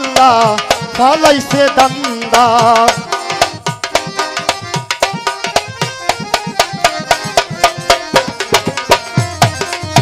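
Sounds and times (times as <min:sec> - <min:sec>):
tabla strokes: 0:00.0 - 0:10.0
held melody notes: 0:02.4 - 0:10.0.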